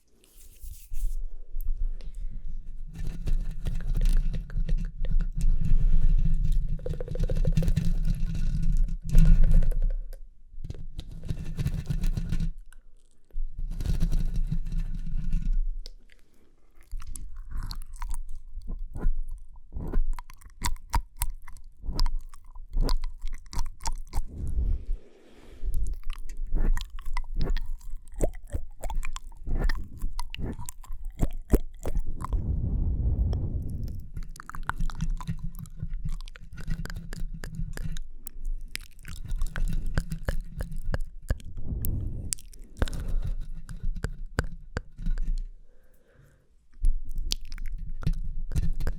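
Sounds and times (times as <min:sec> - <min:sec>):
wet mouth clicks and smacks: 0:15.9 - 0:24.7, 0:25.7 - 0:32.4, 0:33.6 - 0:45.4, 0:46.7 - 0:48.9
low muffled bursts: 0:24.2 - 0:25.1, 0:32.2 - 0:34.2, 0:41.4 - 0:42.5.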